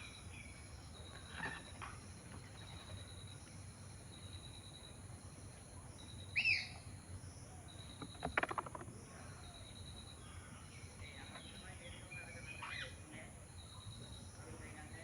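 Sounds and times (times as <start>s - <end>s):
bird call: 6.3s - 6.8s
rattle of clicks: 7.8s - 9.3s.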